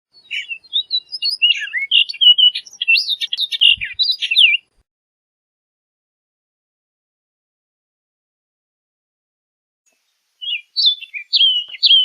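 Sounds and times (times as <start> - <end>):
bird singing whistled notes: 0.1 - 4.7, 9.9 - 12.0.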